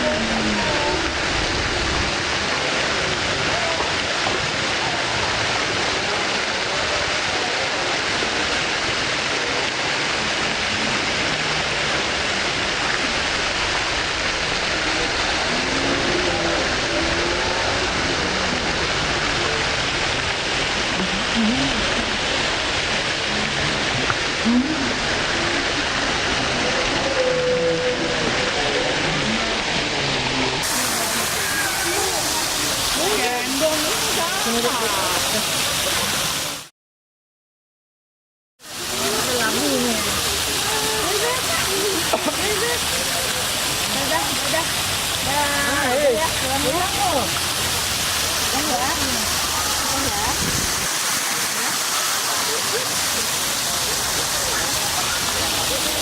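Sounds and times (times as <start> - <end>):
faint voices of people: 0.0 - 12.1, 14.6 - 22.5, 23.2 - 36.7, 38.7 - 47.5, 48.3 - 56.0
running water rushing: 0.0 - 36.7, 38.6 - 56.0.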